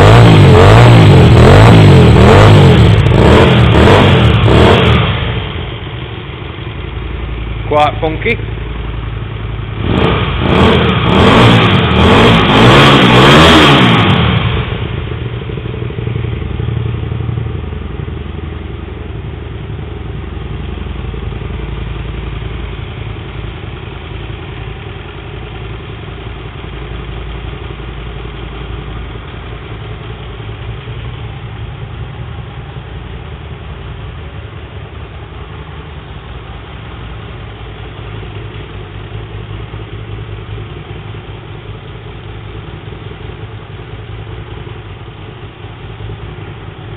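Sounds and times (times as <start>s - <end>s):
motorcycle engine revving and idling: 0.0s - 46.9s.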